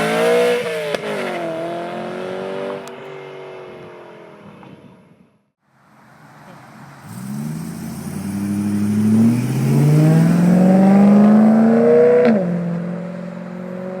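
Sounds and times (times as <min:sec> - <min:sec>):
car exhaust accelerating: 0:07.0 - 0:12.9.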